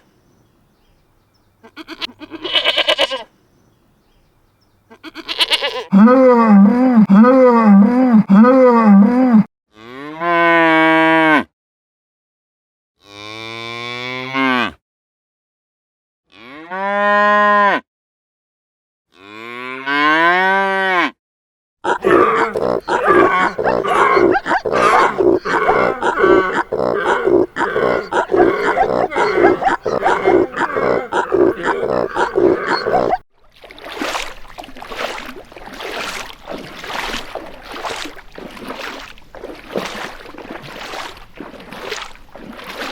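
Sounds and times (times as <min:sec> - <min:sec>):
cattle mooing: 0:21.9 - 0:33.2.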